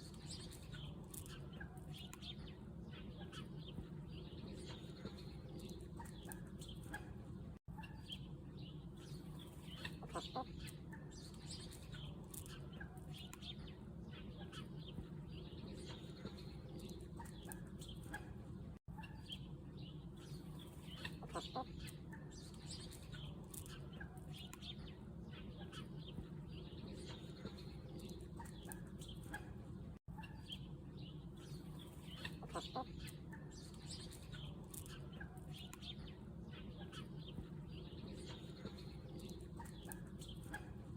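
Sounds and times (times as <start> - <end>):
chickens clucking: 9.4 - 13.5, 20.7 - 24.7, 31.7 - 35.9, 36.5 - 40.9.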